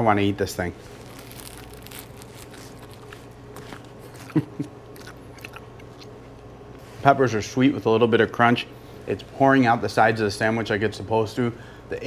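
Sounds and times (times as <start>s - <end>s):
biting and chewing a sandwich: 0.9s - 6.5s.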